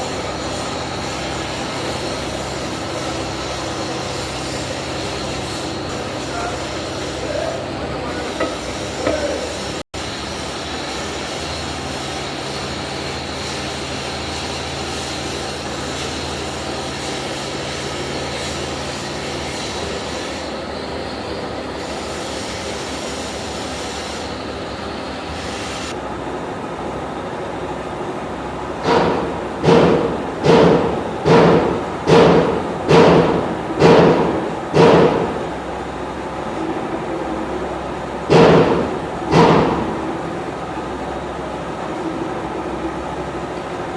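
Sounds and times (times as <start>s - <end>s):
workshop noise: 0.0s - 43.9s
hammer striking metal: 8.2s - 9.6s, 28.8s - 35.4s, 38.3s - 40.0s.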